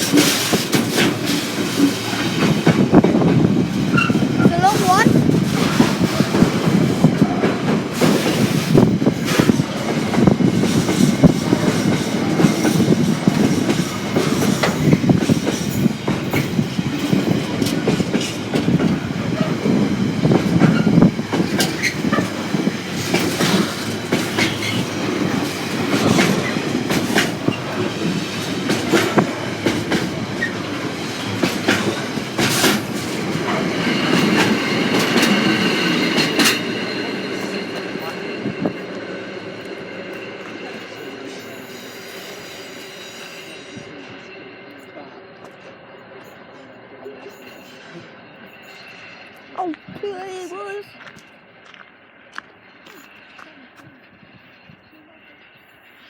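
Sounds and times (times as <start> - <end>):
train wheels clacking on rail joints: 0.0 - 50.2, 50.8 - 55.1
train rumble: 0.0 - 56.0
high wheel squeal: 3.8 - 6.4, 19.0 - 28.3, 33.4 - 45.2, 45.8 - 49.7.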